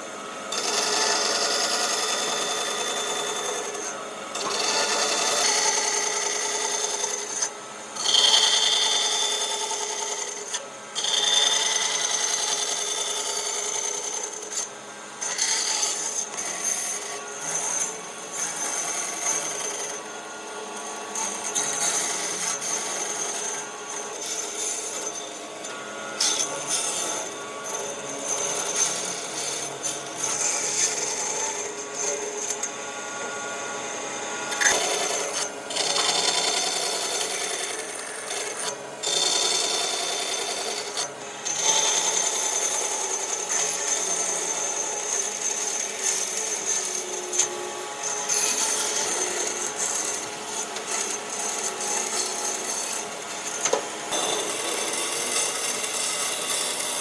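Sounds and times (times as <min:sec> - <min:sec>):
power tool whine: 0:00.0 - 0:57.0.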